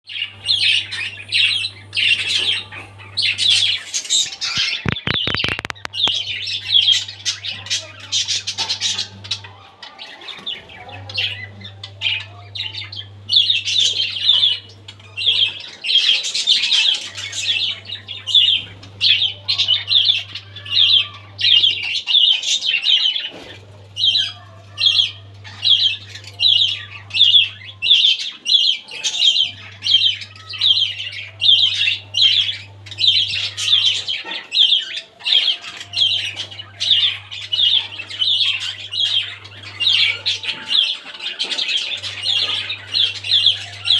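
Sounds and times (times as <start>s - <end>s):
budgerigars chirping: 0.1s - 43.9s
clicks: 4.5s - 6.2s.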